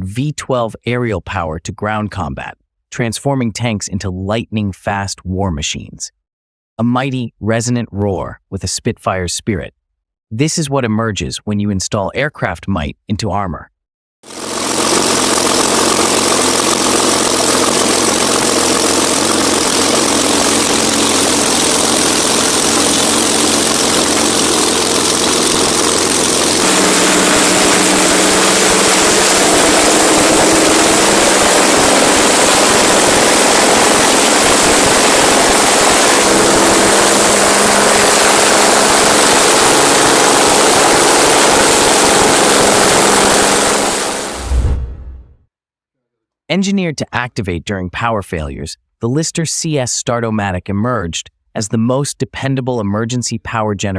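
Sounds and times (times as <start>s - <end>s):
tank engine running: 14.3s - 44.4s.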